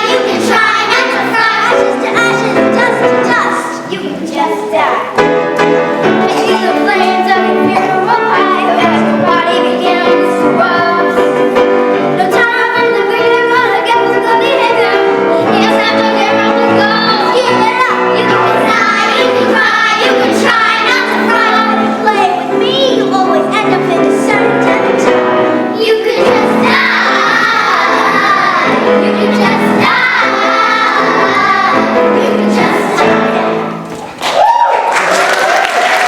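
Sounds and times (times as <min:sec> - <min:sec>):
children singing: 0:00.0 - 0:03.9, 0:06.0 - 0:33.8
musical accompaniment: 0:00.0 - 0:34.5
audience applauding: 0:34.0 - 0:36.0.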